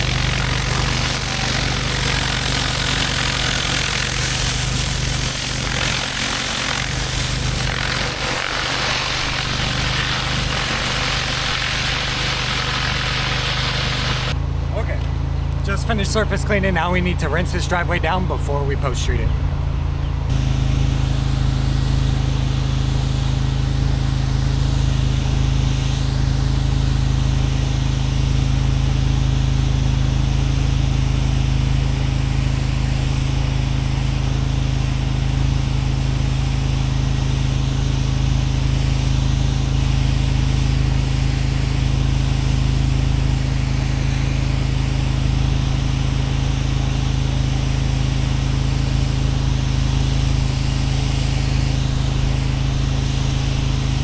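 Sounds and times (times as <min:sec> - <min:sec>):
water spray hissing: 0:00.0 - 0:14.4
pressure washer engine running: 0:00.0 - 0:54.0.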